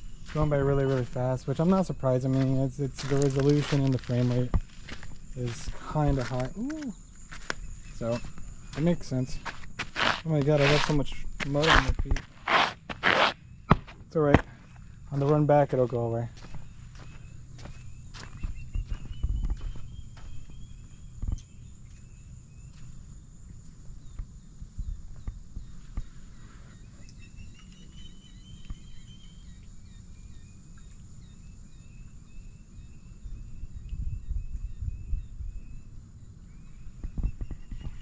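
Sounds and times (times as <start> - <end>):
small birds chirping: 0.0 - 38.0
steady low rumble: 13.5 - 26.0.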